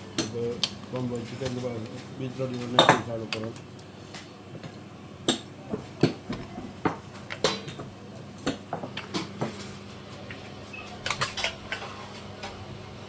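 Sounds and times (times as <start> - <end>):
utensils clinking against plates: 0.2 - 3.6, 10.7 - 12.6.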